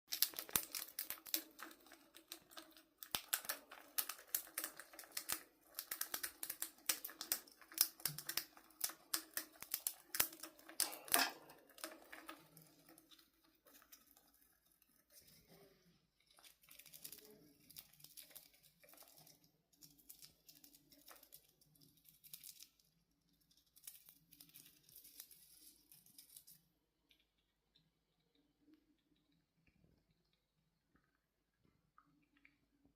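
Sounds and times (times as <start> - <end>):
chipmunk cracking peanut shells: 0.1 - 14.4, 16.3 - 27.8.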